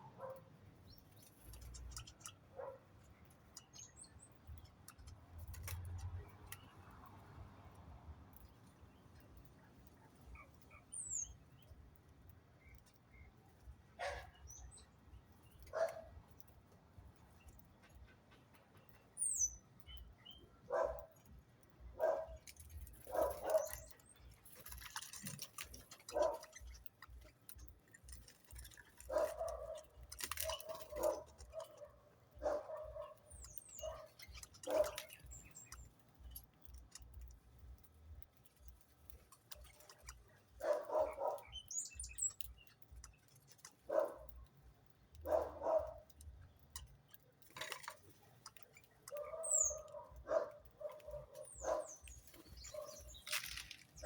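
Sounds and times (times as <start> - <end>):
high bird chirps: 40.6 - 42.7, 48.9 - 54.0.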